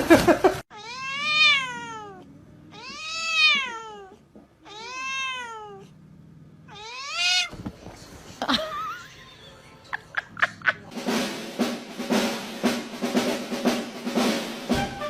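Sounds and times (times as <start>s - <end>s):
cat meowing: 0.7s - 6.0s, 6.7s - 7.6s.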